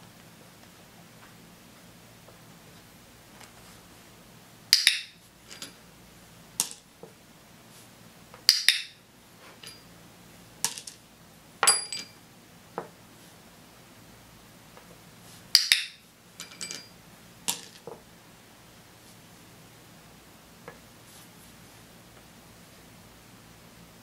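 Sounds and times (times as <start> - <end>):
toy figures clattering on tabletop: 17.5 - 18.0.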